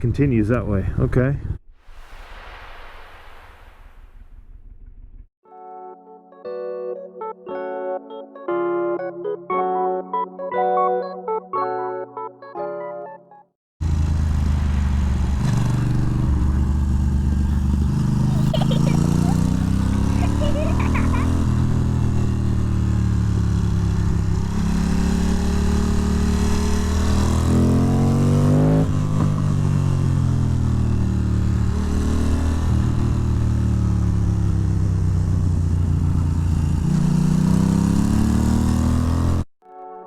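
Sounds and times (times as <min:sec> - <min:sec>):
wind rush: 0:01.8 - 0:04.8
motorcycle engine accelerating: 0:13.8 - 0:39.5.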